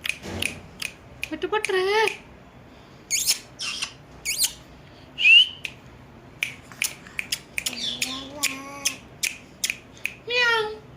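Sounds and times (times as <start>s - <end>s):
soft pitched hum: 0.0s - 10.9s
parrot call: 3.1s - 4.6s.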